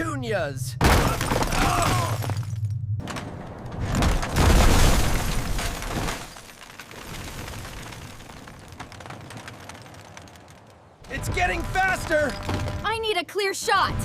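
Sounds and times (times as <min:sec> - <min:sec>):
wrecking ball crashing and shattering: 0:00.8 - 0:10.6.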